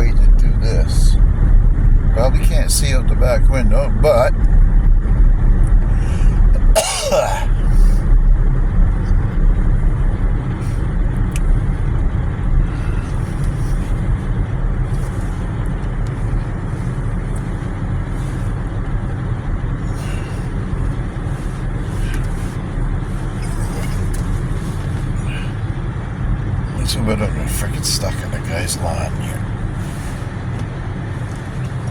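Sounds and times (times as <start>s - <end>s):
vehicle engine rumbling: 0.0s - 31.9s.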